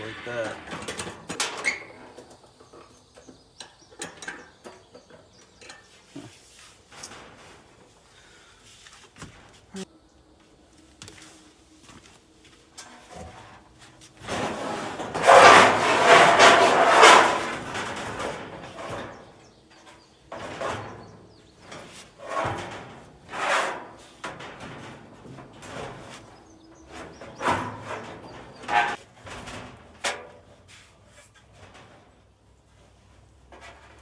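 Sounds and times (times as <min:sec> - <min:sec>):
bumps: 0:00.0 - 0:02.4
dryer parts scraping: 0:00.0 - 0:09.9, 0:12.7 - 0:34.0.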